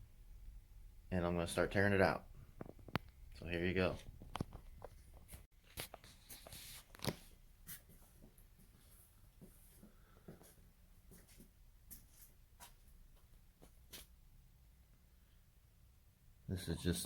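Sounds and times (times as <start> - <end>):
faint taps and scuffs: 3.9 - 14.2.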